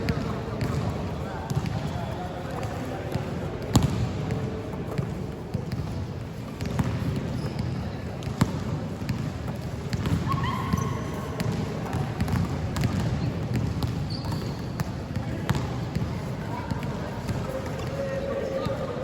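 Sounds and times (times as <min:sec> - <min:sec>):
basketballs bouncing on court: 0:00.0 - 0:18.9
voices and hall noise: 0:00.0 - 0:19.0
short squeaks: 0:14.1 - 0:14.7.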